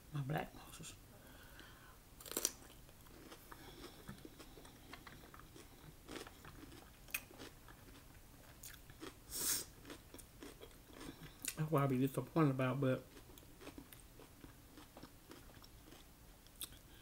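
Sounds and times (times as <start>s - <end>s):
wet chewing and smacking: 2.3s - 9.2s, 9.8s - 11.6s, 13.1s - 16.8s.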